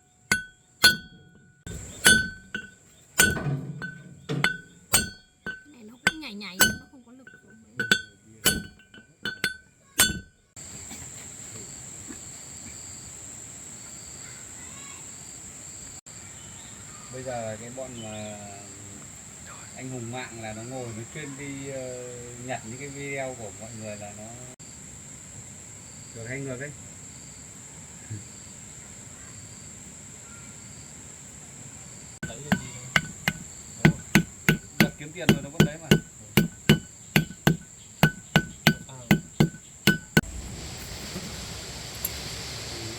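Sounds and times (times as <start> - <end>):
hammer blows on metal: 0.0 - 10.4, 32.2 - 40.3
insects chirring: 0.0 - 42.2
metal clinks ringing: 0.3 - 1.4, 2.0 - 10.3, 32.2 - 40.2.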